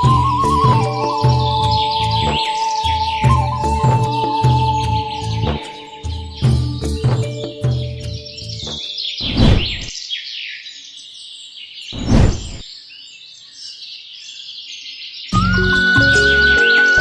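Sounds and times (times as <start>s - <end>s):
music: 0.0s - 9.0s, 15.3s - 17.0s
small birds chirping: 0.0s - 15.5s
rushing whoosh: 9.2s - 9.9s, 12.0s - 12.6s.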